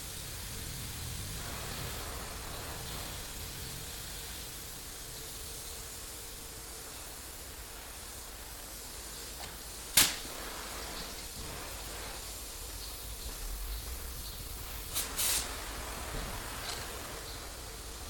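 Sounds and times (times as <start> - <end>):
steady background hiss: 0.0 - 18.0
sharp knock: 9.9 - 10.3.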